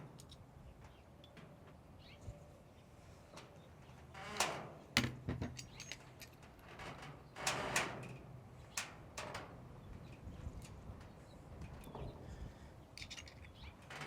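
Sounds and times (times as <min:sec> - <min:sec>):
metal gun parts clinking: 0:13.0 - 0:13.7.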